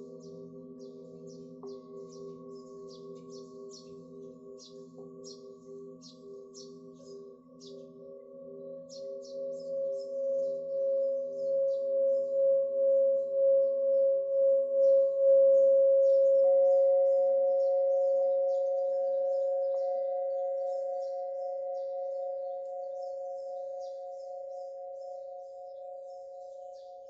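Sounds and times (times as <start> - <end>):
small birds chirping: 0.0 - 7.9
singing bowl held tone: 0.0 - 27.0.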